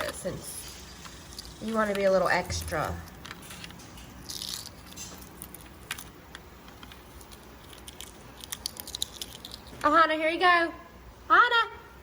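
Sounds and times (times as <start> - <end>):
egg shell cracking and peeling: 0.8 - 9.9.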